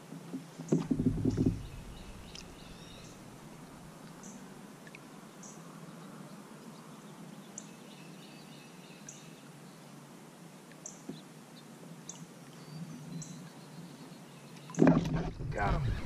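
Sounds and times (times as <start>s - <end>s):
faint background noise: 0.0s - 16.0s
bird chirping: 0.7s - 3.4s.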